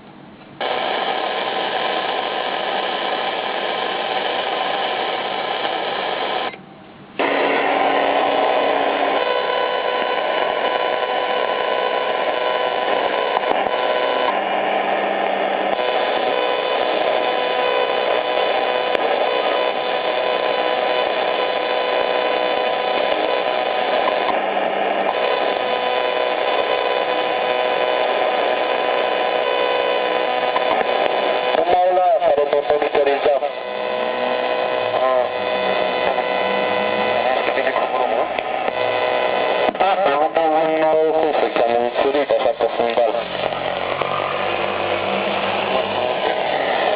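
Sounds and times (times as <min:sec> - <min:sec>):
radio hiss and static: 0:00.6 - 0:06.6, 0:07.2 - 0:46.9
radio whistling tones: 0:25.0 - 0:46.9.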